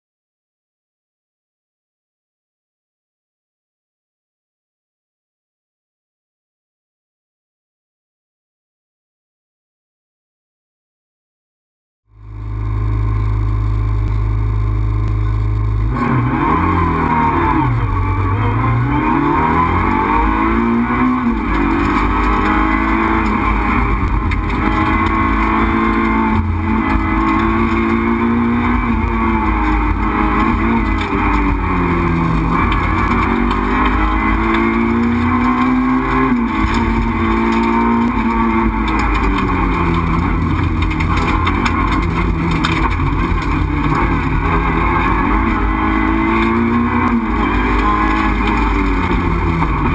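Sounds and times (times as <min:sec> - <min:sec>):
car engine revving through gears: 0:12.2 - 0:49.9.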